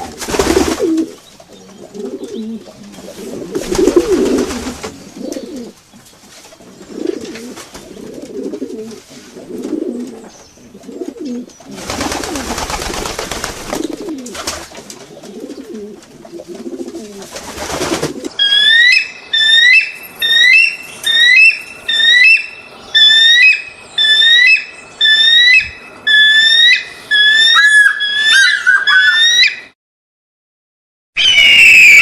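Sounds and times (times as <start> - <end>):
pigeons cooing: 0.0 - 19.0
bird whistled calls: 18.4 - 29.7, 31.2 - 32.0.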